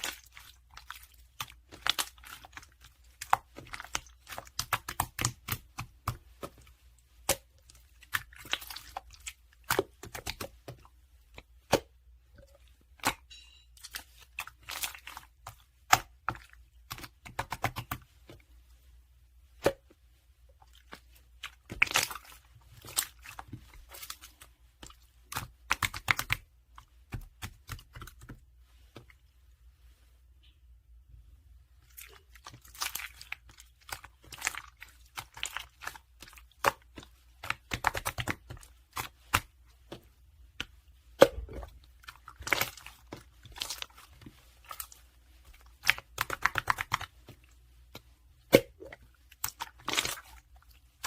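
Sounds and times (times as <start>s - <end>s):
slime crackling and popping: 0.0s - 6.2s, 25.2s - 26.4s, 32.1s - 39.5s, 45.6s - 47.2s.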